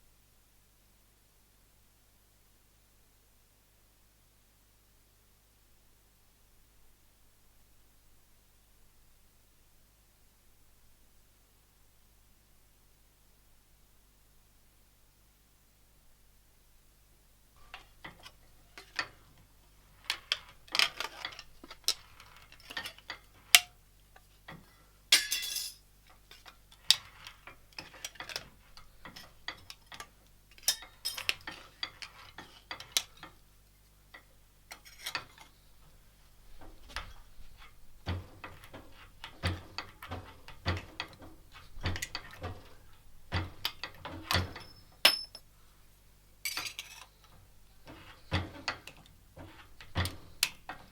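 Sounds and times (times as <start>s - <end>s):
metal tool parts clinking: 25.2s - 25.8s, 44.4s - 45.4s, 46.5s - 47.1s.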